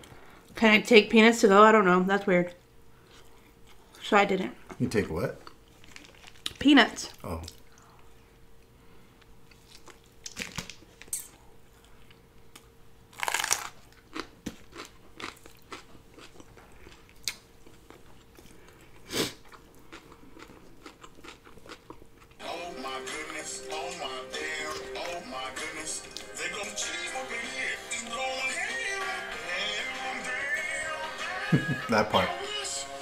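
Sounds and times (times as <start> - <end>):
chewing burger: 4.6 - 6.6, 9.5 - 31.7.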